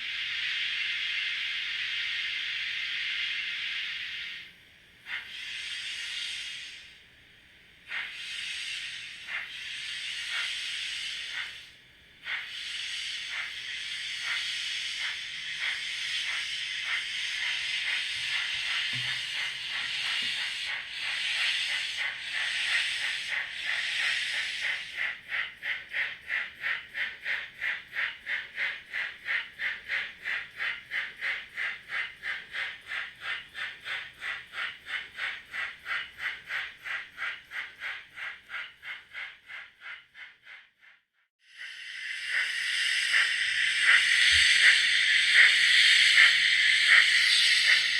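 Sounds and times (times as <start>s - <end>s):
steam hiss: 0.0s - 40.6s, 41.4s - 47.9s
steam locomotive exhaust chuffs: 0.0s - 47.9s.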